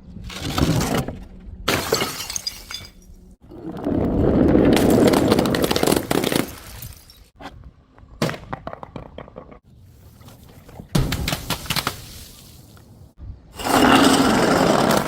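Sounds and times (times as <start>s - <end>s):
glass shattering: 1.7s - 3.1s.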